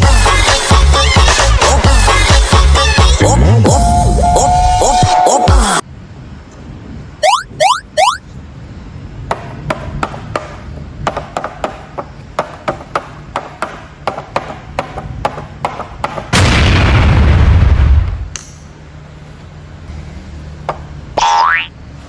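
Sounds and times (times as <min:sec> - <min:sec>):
rising chirps: 0:07.2 - 0:08.2
loud boom sound effect: 0:16.4 - 0:18.3.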